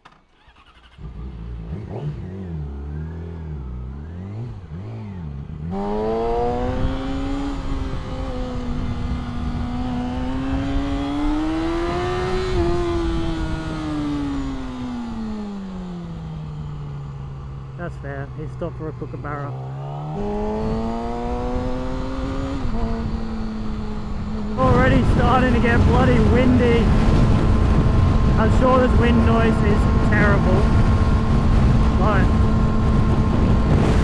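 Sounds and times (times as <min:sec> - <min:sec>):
motorcycle engine revving: 0:00.0 - 0:34.0
wind rushing over microphone: 0:05.8 - 0:16.4, 0:20.1 - 0:34.0.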